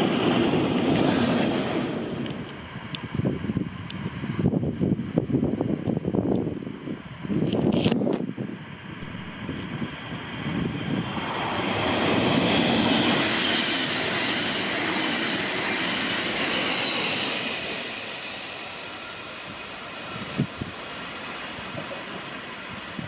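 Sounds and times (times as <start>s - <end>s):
rushing air: 0.0s - 23.0s
train wheel-on-rail noise: 0.0s - 23.0s.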